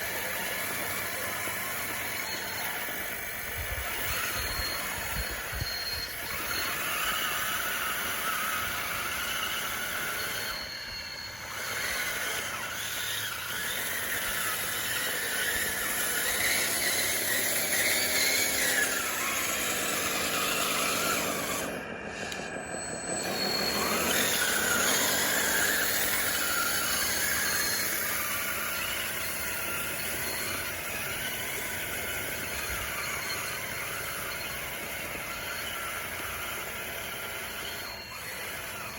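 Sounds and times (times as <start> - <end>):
toy bulldozer motors whining: 0.0 - 38.9.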